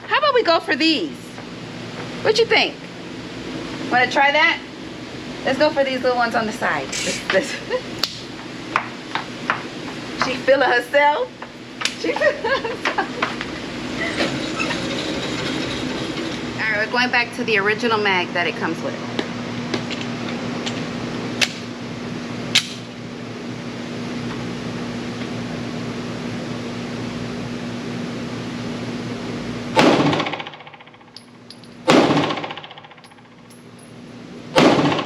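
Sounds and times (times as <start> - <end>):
steady hum: 0.0 - 35.0
pistol shots with reverberation: 31.9 - 32.7.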